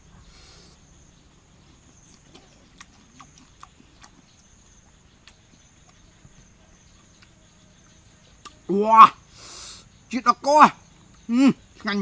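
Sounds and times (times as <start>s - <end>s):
crunching of fried insects chewed: 0.0s - 8.7s
high-pitched insect trill: 0.0s - 12.0s.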